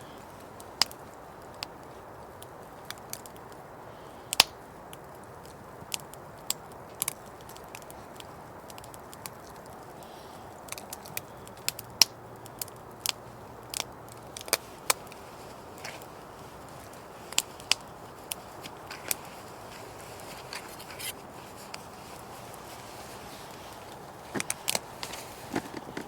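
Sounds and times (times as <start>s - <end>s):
campfire crackling and popping: 0.0s - 26.0s
low background noise: 0.0s - 26.0s.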